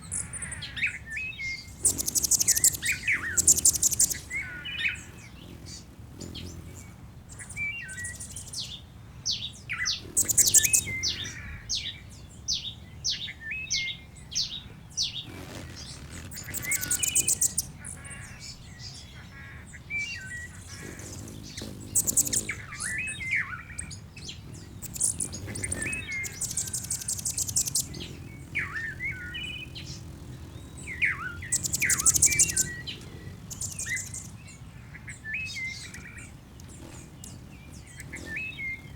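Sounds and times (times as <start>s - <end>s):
high rapid bird trill: 0.0s - 8.7s, 9.7s - 11.9s, 14.5s - 38.9s
small birds chirping: 0.0s - 38.9s.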